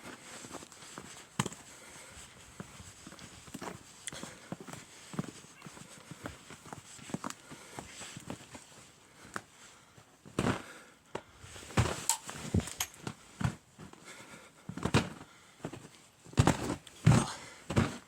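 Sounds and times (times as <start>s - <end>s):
footsteps crunching through snow: 0.0s - 10.7s, 11.4s - 14.0s.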